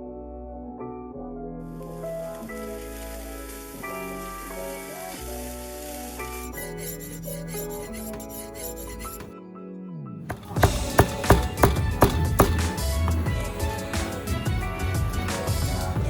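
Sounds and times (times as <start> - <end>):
steady hiss: 2.1 - 6.5
melodic music over bass line: 9.7 - 16.0
loud driving beat: 10.3 - 13.6.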